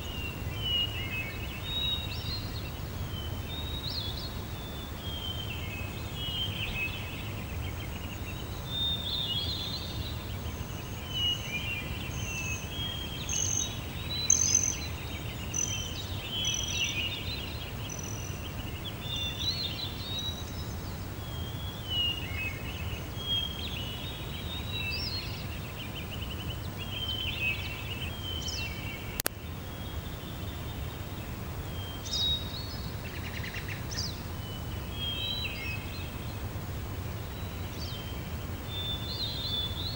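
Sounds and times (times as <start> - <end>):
birds singing and calling: 0.0 - 20.6.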